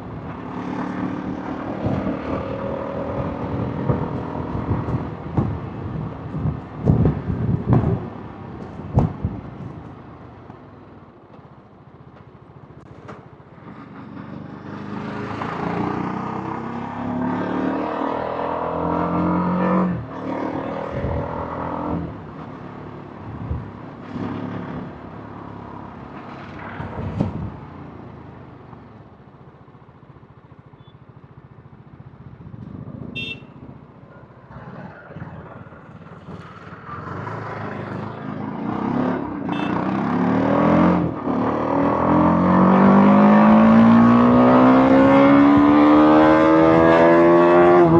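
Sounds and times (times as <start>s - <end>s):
motorcycle engine revving: 14.5s - 22.1s, 35.8s - 47.9s.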